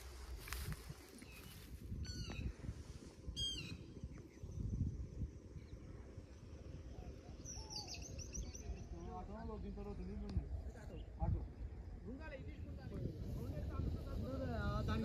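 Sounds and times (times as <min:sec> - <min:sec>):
low uneven rumble: 0:00.0 - 0:15.0
high-pitched bird calls: 0:01.2 - 0:02.6, 0:03.4 - 0:04.7, 0:06.9 - 0:09.0.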